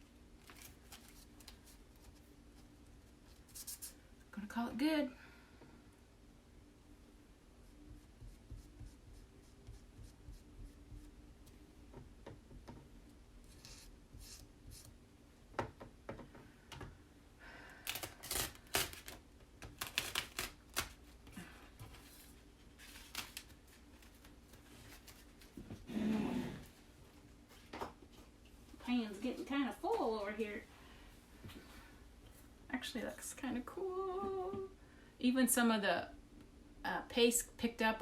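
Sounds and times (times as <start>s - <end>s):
crackly rustling: 0.3s - 4.0s.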